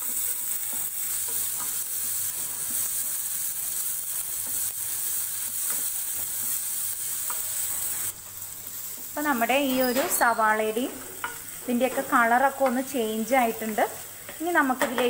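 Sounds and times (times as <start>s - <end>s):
food sizzling in hot oil: 0.0s - 15.0s
spatula scraping and tapping pan: 5.4s - 7.9s, 10.9s - 13.0s, 13.6s - 15.0s.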